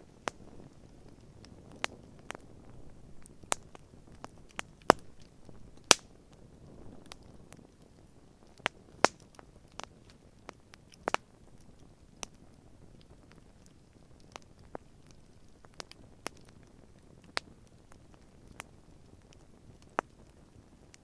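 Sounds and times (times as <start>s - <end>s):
campfire crackling and popping: 0.0s - 21.0s
faint low hiss: 0.0s - 21.0s.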